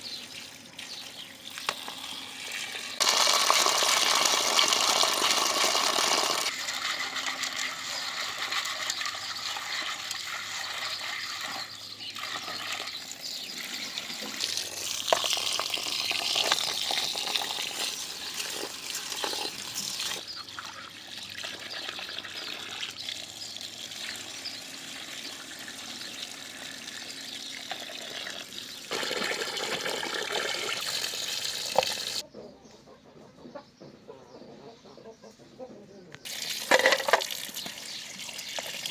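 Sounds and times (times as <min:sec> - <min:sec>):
running water splashing: 0:36.3 - 0:38.9.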